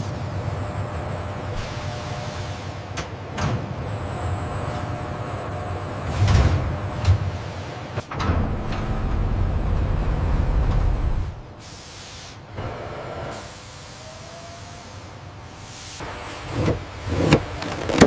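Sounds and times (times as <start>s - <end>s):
heavy machinery rumbling: 0.0s - 11.6s.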